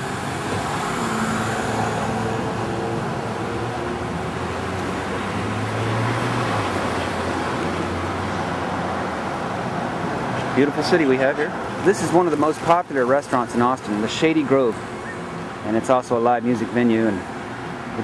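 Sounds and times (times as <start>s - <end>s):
road and tyre noise: 0.0s - 18.0s.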